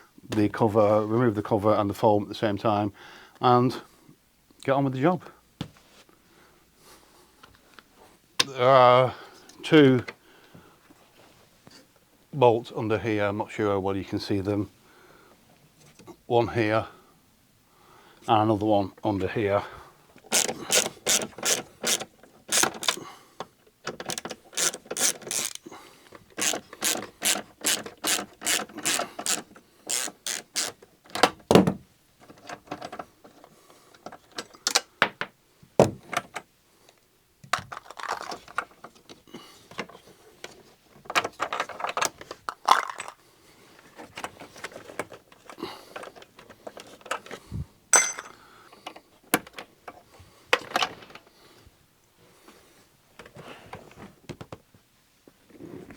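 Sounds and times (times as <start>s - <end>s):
hand ratchet clicking: 20.2s - 23.0s, 23.9s - 30.9s.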